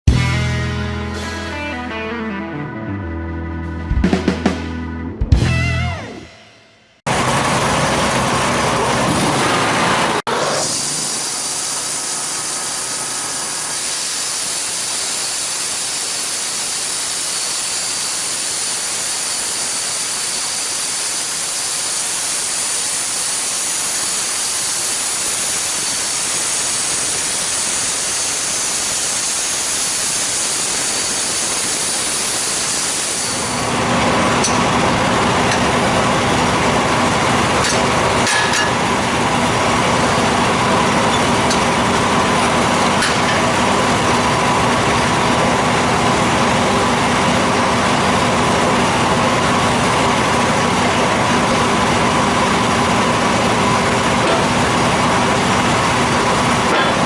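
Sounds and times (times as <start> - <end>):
saw hissing through log: 10.3 - 33.8.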